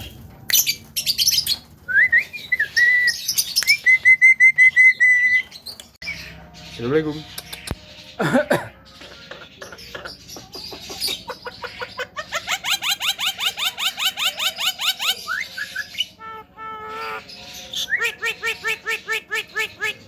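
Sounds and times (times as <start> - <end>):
myna calling: 15.9 - 20.0.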